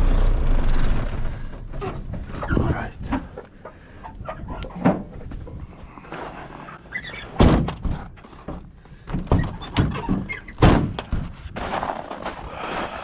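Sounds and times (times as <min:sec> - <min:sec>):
heavy thuds and knocks: 0:07.4 - 0:12.2.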